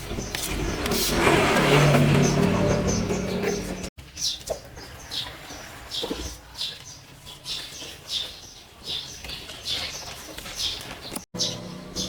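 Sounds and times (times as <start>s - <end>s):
small bird chirping: 5.9s - 12.0s.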